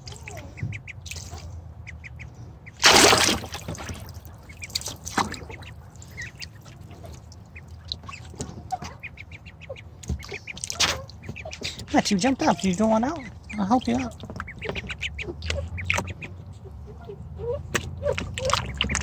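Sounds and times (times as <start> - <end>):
ducklings peeping: 0.0 - 19.0
water splash: 2.8 - 6.3.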